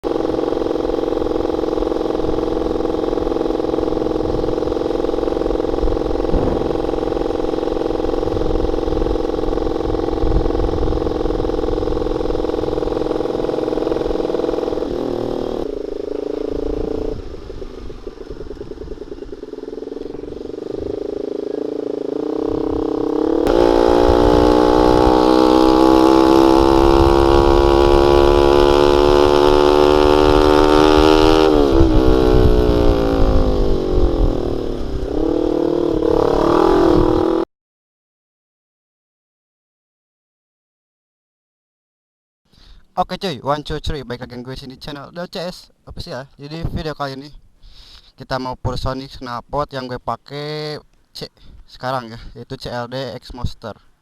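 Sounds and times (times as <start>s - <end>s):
motorcycle engine running: 0.0s - 37.4s.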